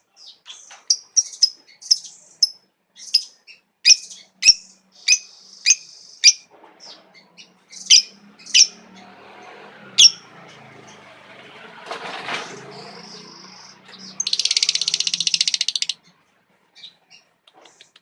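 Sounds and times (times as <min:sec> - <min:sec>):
lovebird shrill chirps: 0:14.0 - 0:16.0.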